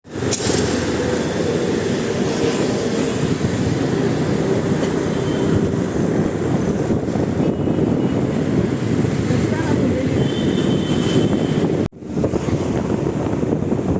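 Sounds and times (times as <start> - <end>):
moving vehicle rumble: 0.0 - 13.9.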